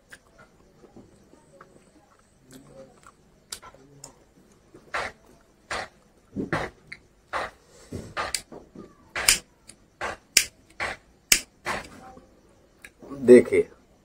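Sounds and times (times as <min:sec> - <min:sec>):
open-mouthed chewing and lip smacking: 0:00.0 - 0:06.1.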